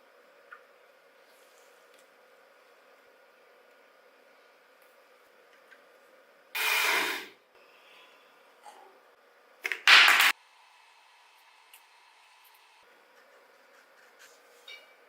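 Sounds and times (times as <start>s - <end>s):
bursts of hissing: 6.6s - 7.3s.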